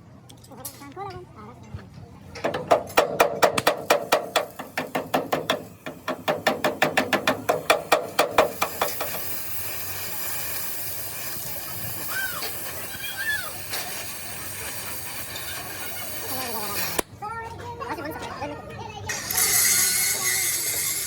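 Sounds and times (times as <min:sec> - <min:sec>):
hammer beating sheet steel: 0:02.4 - 0:09.5
steady hiss: 0:03.7 - 0:17.1.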